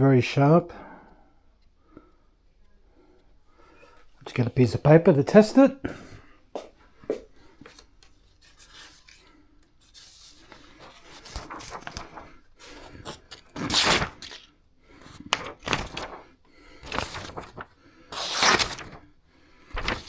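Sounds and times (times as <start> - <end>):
paper being handled: 7.2 - 19.1, 19.7 - 20.0
knife slicing paper: 9.8 - 16.2, 16.8 - 19.0, 19.7 - 20.0.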